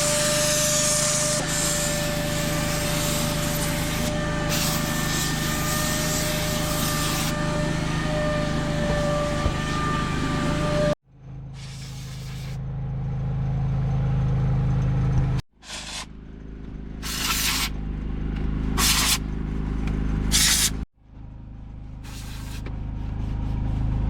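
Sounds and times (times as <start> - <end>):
steam hissing: 0.0 - 7.4, 11.6 - 12.6, 15.6 - 16.1, 17.0 - 17.7, 18.8 - 19.2, 20.3 - 20.8, 22.0 - 22.6
steam cleaner motor whine: 0.0 - 11.0.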